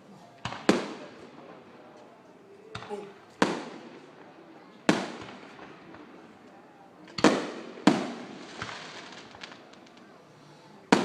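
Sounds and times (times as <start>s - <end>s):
firework shells bursting: 7.1s - 10.2s.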